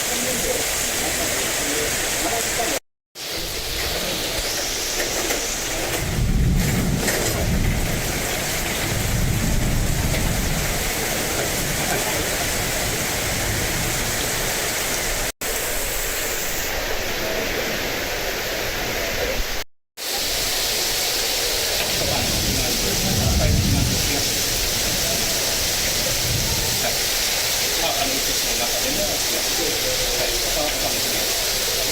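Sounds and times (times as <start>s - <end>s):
heavy rain: 0.0s - 31.9s.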